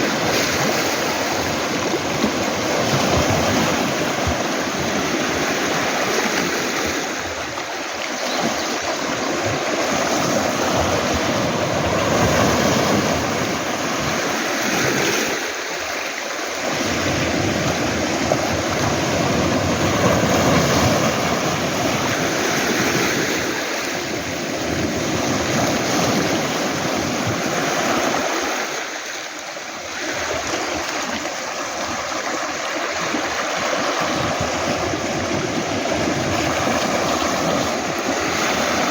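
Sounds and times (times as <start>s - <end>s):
waves washing onto pebbles: 0.0s - 38.9s.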